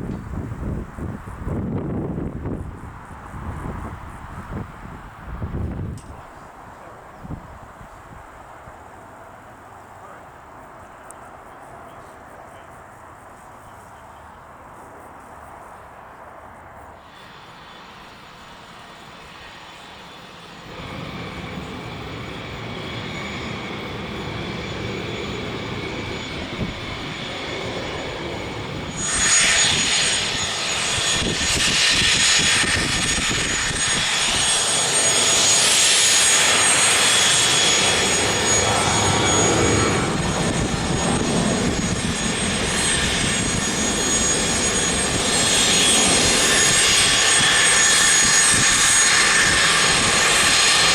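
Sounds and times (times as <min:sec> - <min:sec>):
jet engines roaring: 0:17.0 - 0:50.9.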